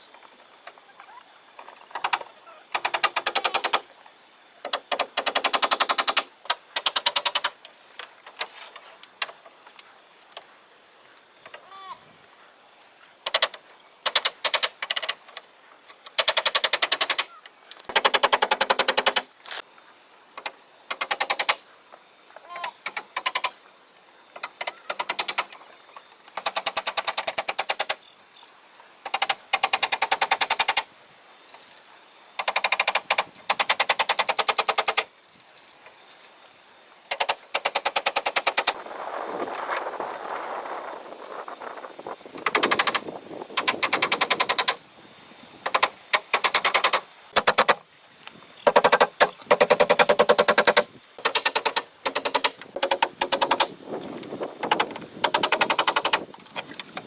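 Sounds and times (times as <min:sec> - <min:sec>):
power tool rattling in bursts: 0:48.7 - 0:53.8, 0:54.6 - 0:56.3.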